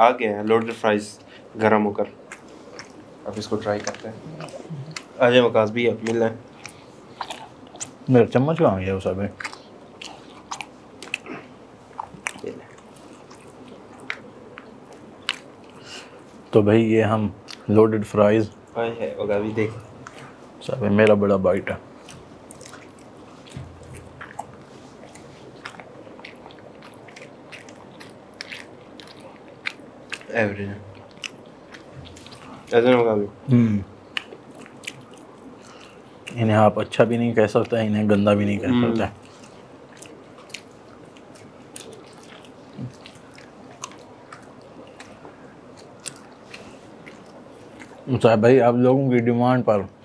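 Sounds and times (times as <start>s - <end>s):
people chewing food: 0.0s - 50.0s.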